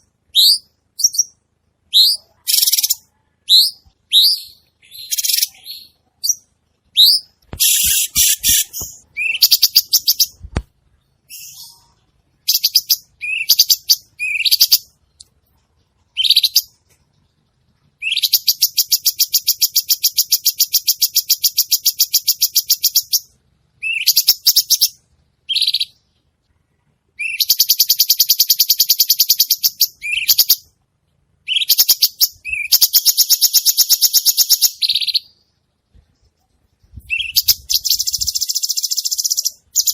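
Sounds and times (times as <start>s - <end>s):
bird whistled rising notes: 7.0s - 10.4s, 37.0s - 39.9s.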